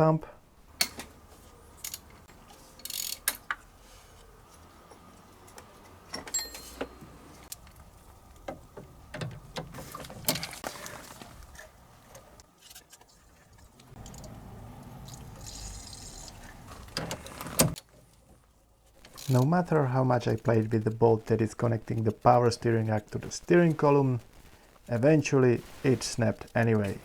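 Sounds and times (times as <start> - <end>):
hand tools clinking on metal: 6.2 - 7.5.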